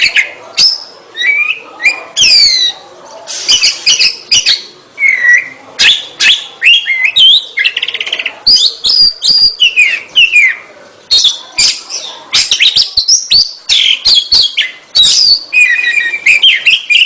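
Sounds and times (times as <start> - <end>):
bird singing whistled phrases: 0.0 - 2.8, 3.4 - 17.0.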